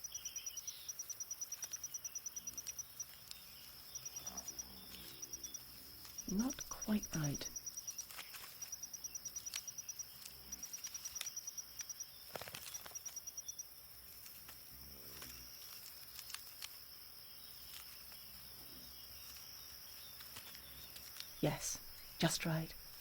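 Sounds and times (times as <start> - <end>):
rapid cricket chirps: 0.0 - 23.0.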